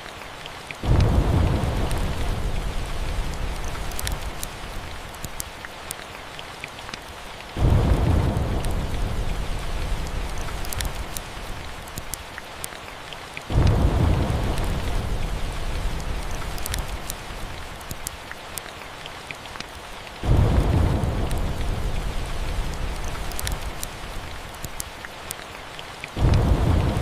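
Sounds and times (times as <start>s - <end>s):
steady rain: 0.0s - 27.0s
thunder rumbling: 0.8s - 5.2s, 7.6s - 12.2s, 13.5s - 18.0s, 20.2s - 24.6s, 26.2s - 27.0s
fireplace crackles: 0.8s - 12.7s, 13.5s - 18.7s, 19.5s - 25.4s.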